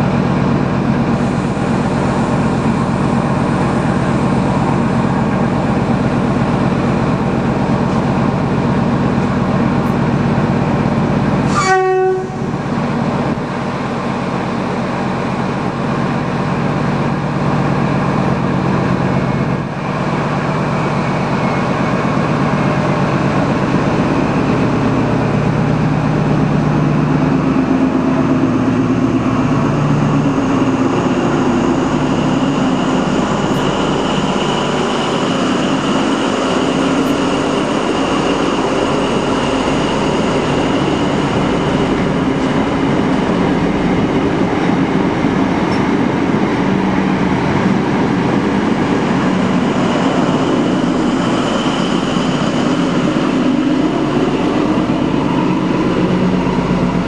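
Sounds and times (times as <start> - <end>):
train diesel engine running: 0.0 - 57.0
train horn blast: 11.4 - 12.6.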